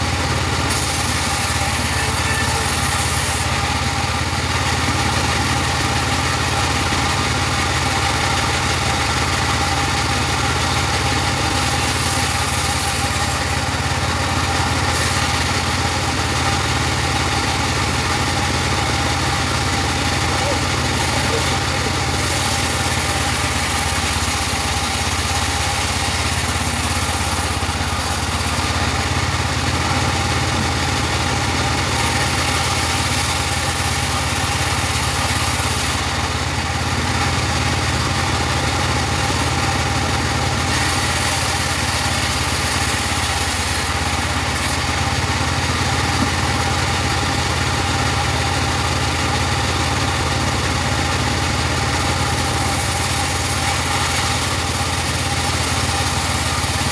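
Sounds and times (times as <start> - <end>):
bandsaw whine: 0.0 - 56.9
engine drone: 7.8 - 36.3.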